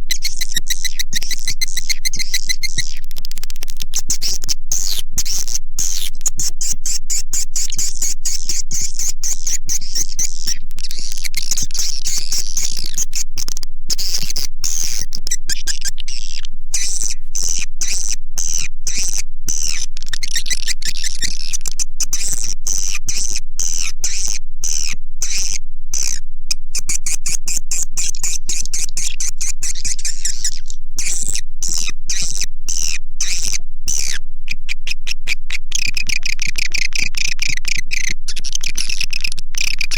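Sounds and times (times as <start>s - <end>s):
swiftlets twittering: 0.0s - 26.2s.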